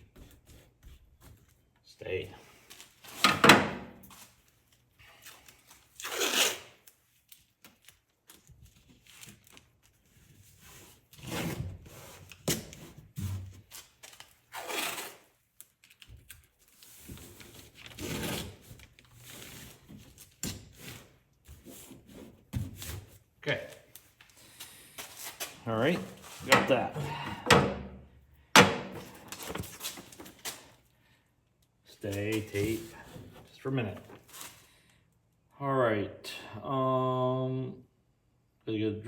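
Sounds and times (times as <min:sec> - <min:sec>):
hands rustling with tape: 0:04.0 - 0:11.2, 0:12.0 - 0:27.4, 0:28.9 - 0:30.9, 0:32.0 - 0:34.8.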